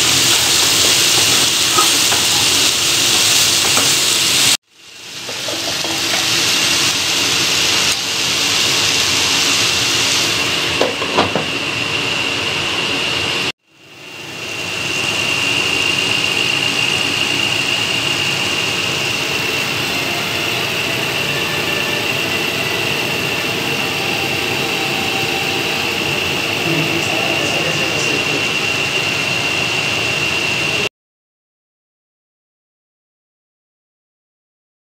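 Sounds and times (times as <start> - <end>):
vegetables sizzling in a pan: 0.0 - 11.6.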